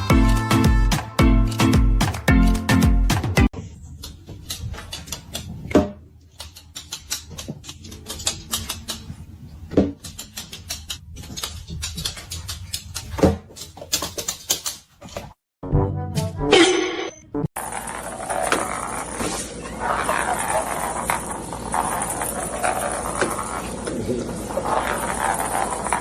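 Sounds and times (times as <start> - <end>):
clicks and taps: 9.7 - 14.9.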